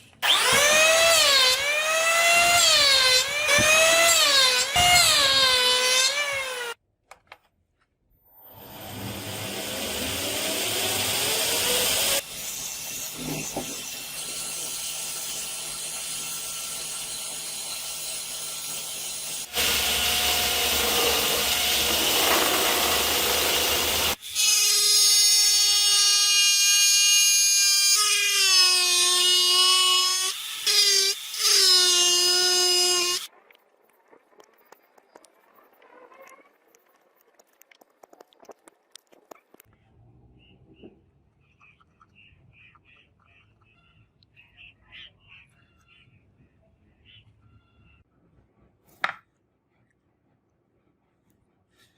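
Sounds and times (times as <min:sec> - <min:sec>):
electric power tools running: 0:00.2 - 0:04.1, 0:08.6 - 0:12.2, 0:19.4 - 0:24.2.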